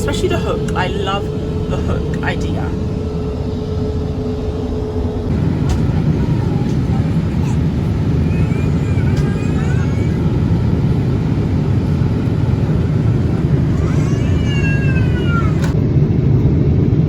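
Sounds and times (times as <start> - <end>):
airliner cabin rumble: 0.0 - 17.0
faint voice: 5.4 - 10.6.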